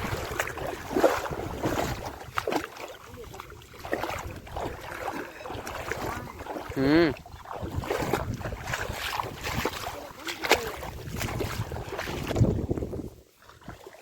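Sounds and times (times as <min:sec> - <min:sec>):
wind buffeting microphone: 0:00.0 - 0:13.2
water sloshing and splashing: 0:00.0 - 0:14.0.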